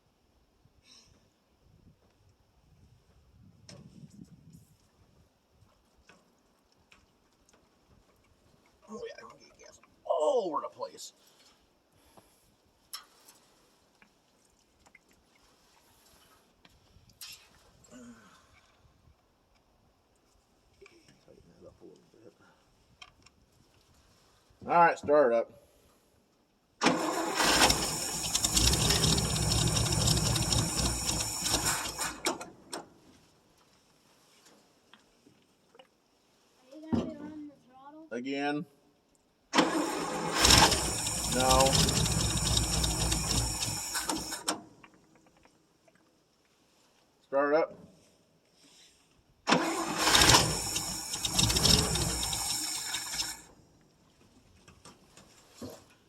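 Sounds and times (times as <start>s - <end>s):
starter cranking engine: 26.8s - 32.6s, 39.6s - 44.6s, 49.5s - 53.5s.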